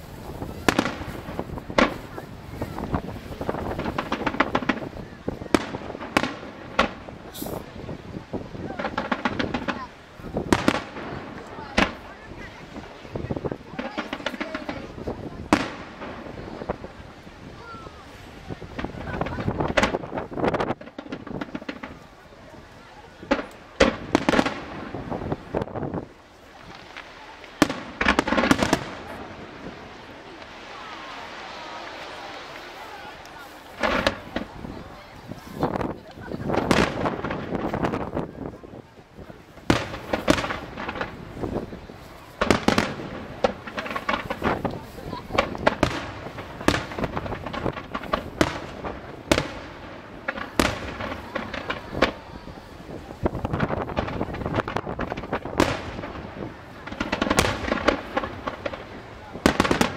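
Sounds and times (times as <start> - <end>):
crackling firework reports: 0.0 - 59.9
firework shells bursting: 2.8 - 7.7, 26.6 - 34.7, 39.6 - 59.9.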